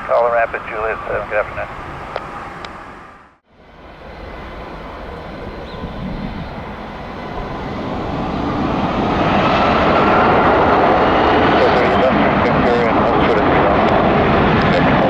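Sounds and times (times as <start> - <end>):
faint rising engine whine: 0.0 - 15.0
jet engines roaring: 0.0 - 15.0.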